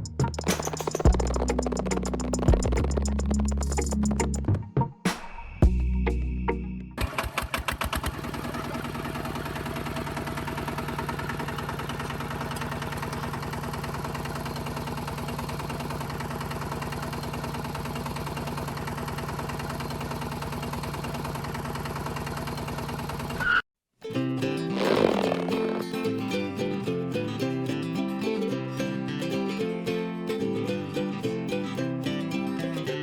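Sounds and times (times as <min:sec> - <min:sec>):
small engine running: 0:07.0 - 0:23.5, 0:24.7 - 0:27.5.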